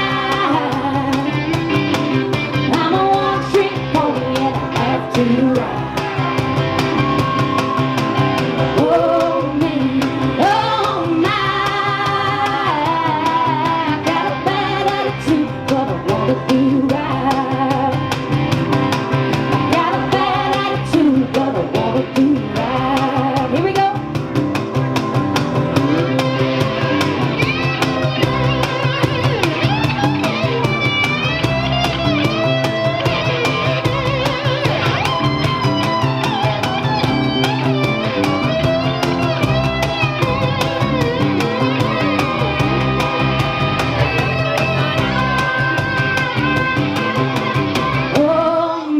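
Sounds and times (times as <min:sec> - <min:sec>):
person singing: 0:00.0 - 0:02.0, 0:02.6 - 0:06.3, 0:08.7 - 0:18.2, 0:19.7 - 0:24.0, 0:48.1 - 0:48.9
drums with steady beat: 0:00.0 - 0:48.9
guitar: 0:00.0 - 0:48.9.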